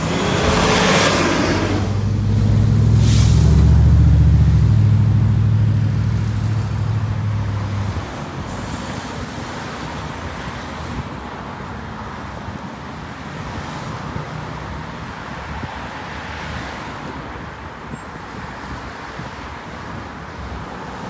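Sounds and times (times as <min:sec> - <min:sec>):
vehicle engine low drone: 0:00.0 - 0:08.7
traffic noise: 0:00.0 - 0:21.0.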